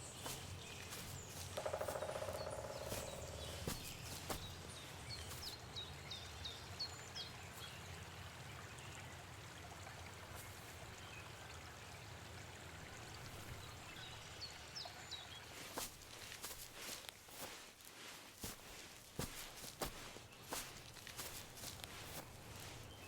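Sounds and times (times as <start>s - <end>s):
small bird chirping: 0.0s - 7.8s
soft forest hiss: 0.0s - 23.0s.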